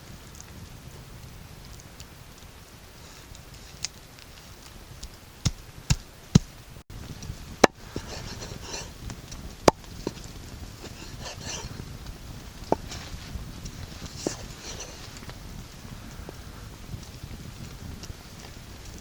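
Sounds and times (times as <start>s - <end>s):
chopping strikes: 5.4s - 6.6s
light rustling: 7.2s - 15.4s.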